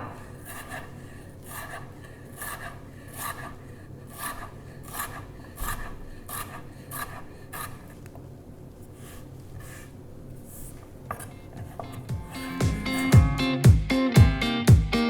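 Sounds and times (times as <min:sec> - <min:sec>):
knife cutting potato on board: 0:00.0 - 0:08.0, 0:10.6 - 0:13.2.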